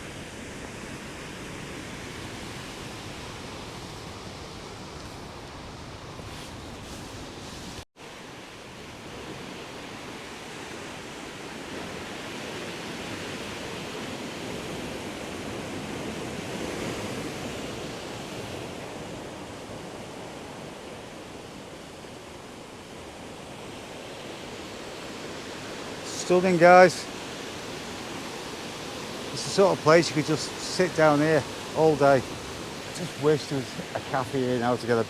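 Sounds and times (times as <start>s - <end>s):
water rushing in rocky stream: 25.9s - 27.2s, 29.2s - 35.0s.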